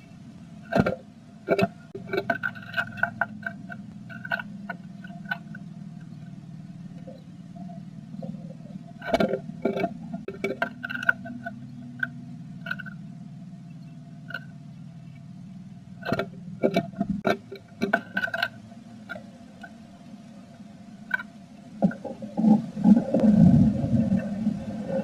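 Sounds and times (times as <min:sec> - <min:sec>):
steady low hum: 0:00.0 - 0:25.0
taps and scratches in wooden box: 0:00.7 - 0:06.3, 0:16.0 - 0:19.7.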